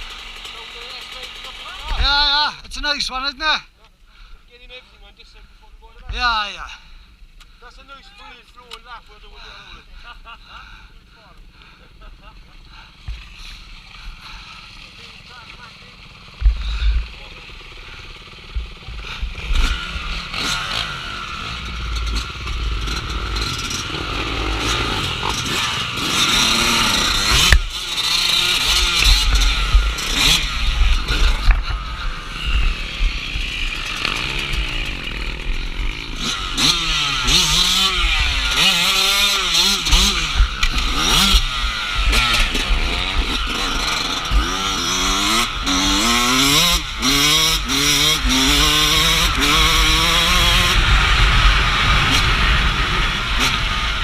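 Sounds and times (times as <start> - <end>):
dirt bike engine revving: 0.0 - 2.7, 11.4 - 54.0.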